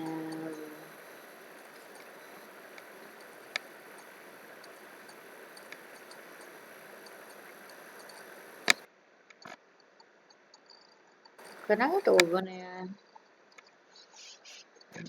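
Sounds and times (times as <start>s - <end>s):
steady background hiss: 0.0s - 9.2s, 11.4s - 13.5s
computer mouse clicks: 0.2s - 8.8s.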